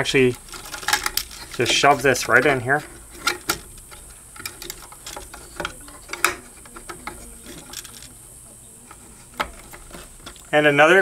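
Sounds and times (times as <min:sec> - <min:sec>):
wires and outlet knocking in metal box: 0:00.3 - 0:08.1.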